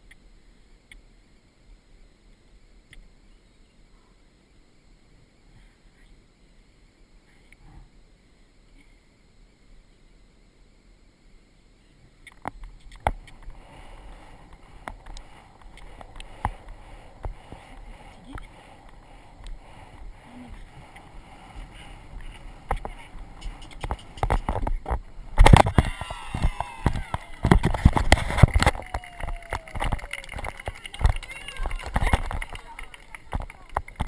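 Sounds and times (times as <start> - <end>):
faint rushing noise: 0.0 - 34.0
hooves and tack knocking: 12.4 - 34.0.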